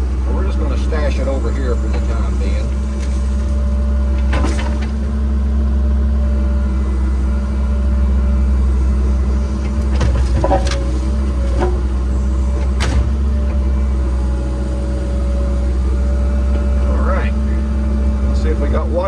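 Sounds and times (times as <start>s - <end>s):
excavator diesel engine running: 0.0s - 19.0s
sharp knocks: 9.8s - 13.4s.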